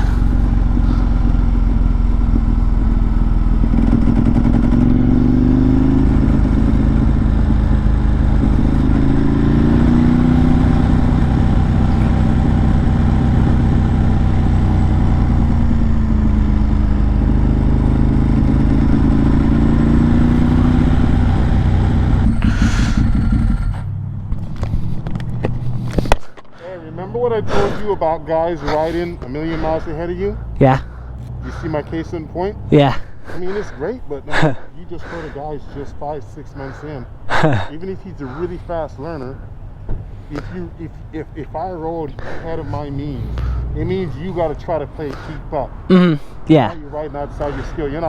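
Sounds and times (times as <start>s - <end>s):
wind rumble: 0.0s - 26.3s
motorcycle engine: 0.0s - 48.0s.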